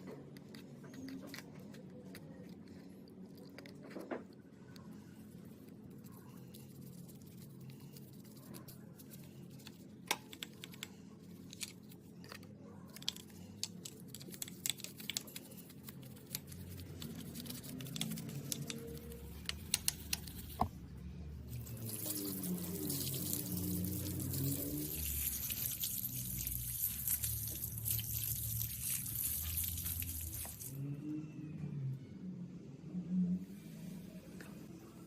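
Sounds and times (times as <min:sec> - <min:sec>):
water running: 0:21.6 - 0:30.8.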